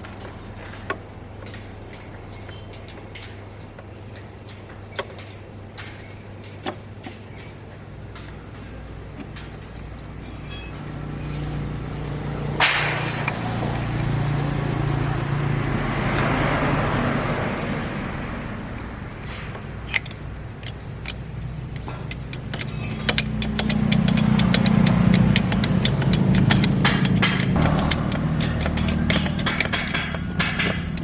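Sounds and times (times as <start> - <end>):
metallic knocks and clicks: 4.6 - 16.5, 18.6 - 31.0
diesel engine running: 9.0 - 31.0.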